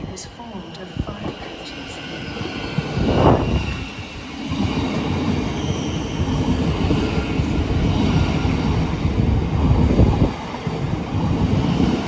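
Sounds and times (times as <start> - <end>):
train rumbling on tracks: 0.0 - 12.0.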